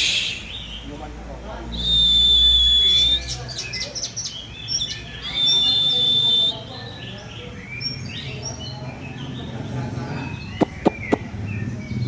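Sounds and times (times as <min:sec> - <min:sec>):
bird chirping and whistling: 0:00.0 - 0:00.8, 0:01.7 - 0:07.0, 0:10.4 - 0:11.2.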